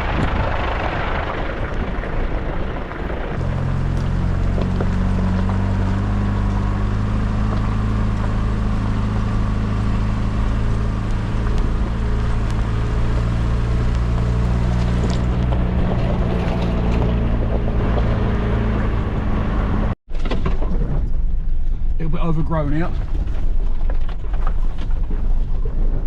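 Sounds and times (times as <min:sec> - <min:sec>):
rain and tyres hissing: 0:00.0 - 0:17.4
truck engine droning: 0:00.0 - 0:20.0.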